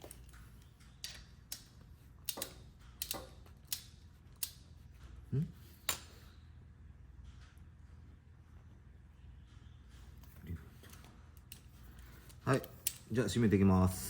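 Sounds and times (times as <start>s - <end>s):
hand tool clicking: 1.0s - 4.6s.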